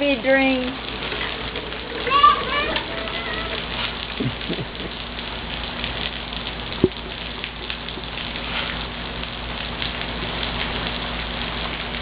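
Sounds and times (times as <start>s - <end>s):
steady rain pattering: 0.0s - 12.0s.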